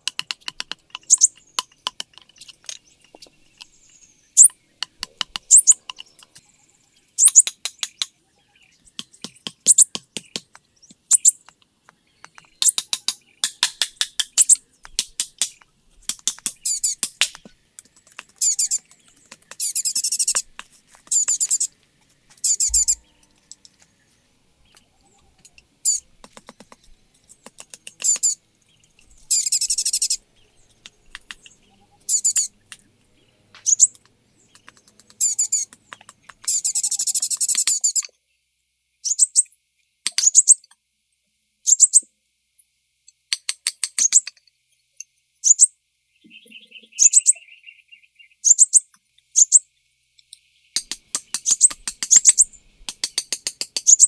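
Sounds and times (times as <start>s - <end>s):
rapid bird trills: 0.0s - 11.5s, 12.1s - 38.1s, 48.4s - 49.6s, 50.7s - 54.0s
small birds chirping: 0.0s - 40.8s, 41.6s - 54.0s.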